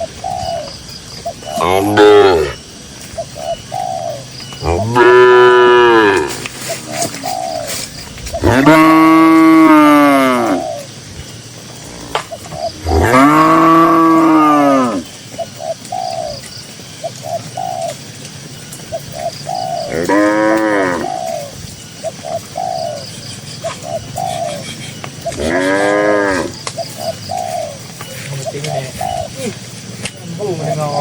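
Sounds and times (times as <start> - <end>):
bird cooing: 0.0 - 31.0
cow mooing: 4.6 - 6.4, 8.4 - 10.6, 11.8 - 15.1, 19.9 - 21.1, 25.4 - 26.6.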